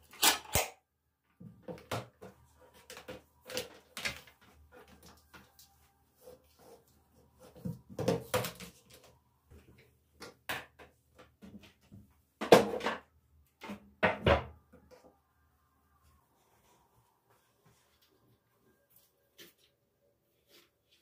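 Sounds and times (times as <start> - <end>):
household objects knocking and clattering: 10.2 - 14.6.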